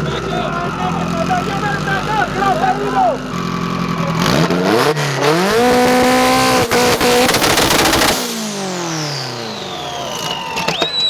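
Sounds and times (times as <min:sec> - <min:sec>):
car engine on launch limiter: 0:00.0 - 0:11.0
exhaust pops and bangs: 0:10.0 - 0:11.0.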